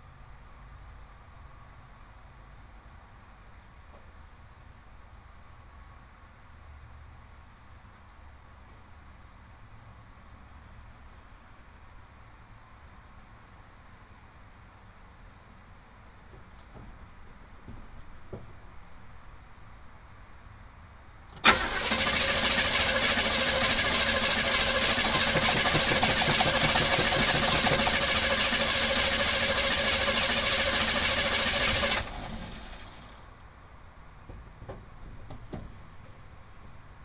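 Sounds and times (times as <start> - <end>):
car engine starting and running: 21.3 - 33.4.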